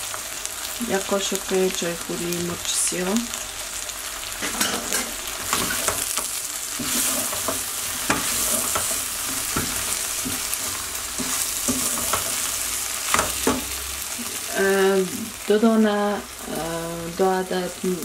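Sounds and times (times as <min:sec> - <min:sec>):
okra sizzling in a pot: 0:00.0 - 0:18.0
wooden spoon scraping a pot: 0:04.4 - 0:14.4.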